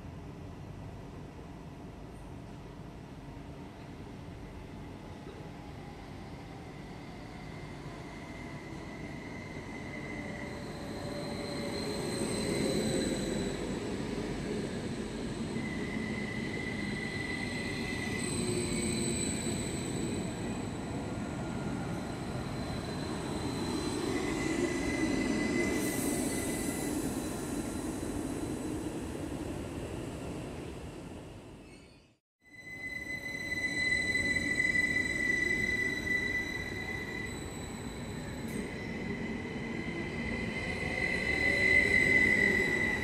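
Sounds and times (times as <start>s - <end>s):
train rumbling on rails: 0.0s - 31.8s
high whine or squeal: 6.8s - 28.9s, 31.6s - 43.0s.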